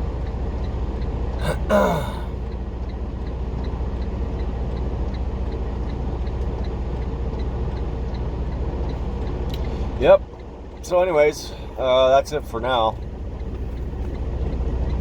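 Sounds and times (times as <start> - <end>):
diesel truck engine idling: 0.0 - 15.0
faint regular ticking: 2.4 - 11.1.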